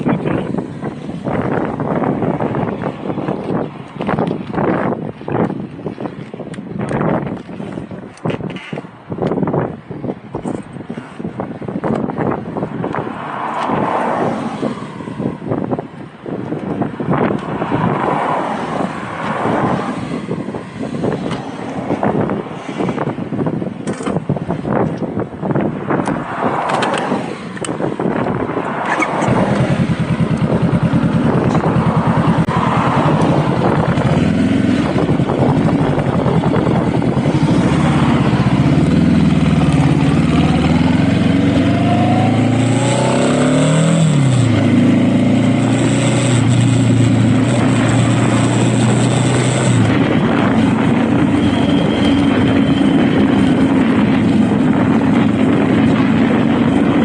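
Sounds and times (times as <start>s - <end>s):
motorcycle engine accelerating: 27.6s - 57.0s.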